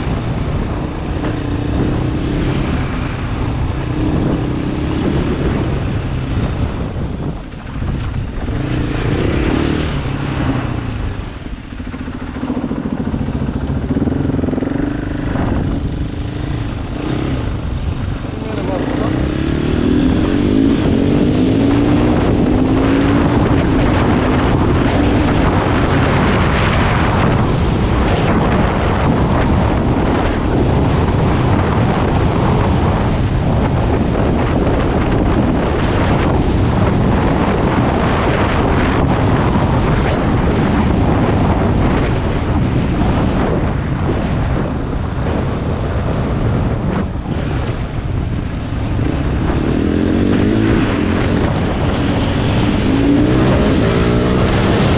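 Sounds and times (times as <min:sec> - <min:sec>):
wind rushing over microphone: 0:00.0 - 0:54.9
dirt bike engine revving: 0:08.4 - 0:17.7, 0:18.3 - 0:43.6, 0:48.8 - 0:54.9.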